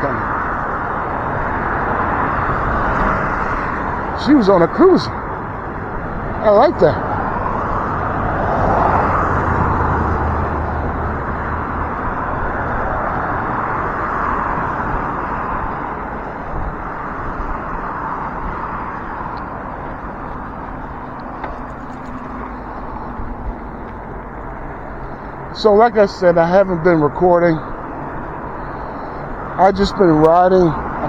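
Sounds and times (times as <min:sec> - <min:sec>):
fast road traffic passing: 0:00.0 - 0:31.0.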